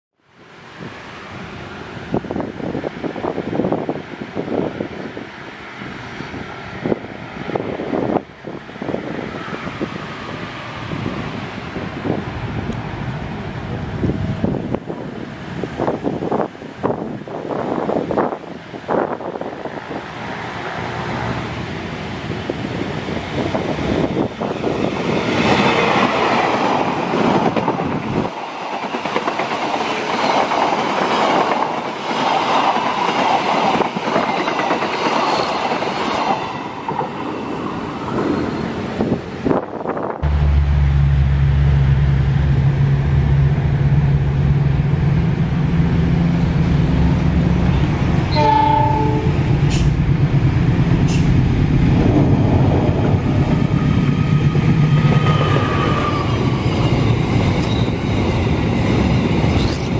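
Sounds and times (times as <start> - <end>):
diesel locomotive engine: 0.3 - 59.9
train wheels clattering on rails: 22.2 - 39.2, 47.3 - 59.9
train horn chord: 48.3 - 49.4.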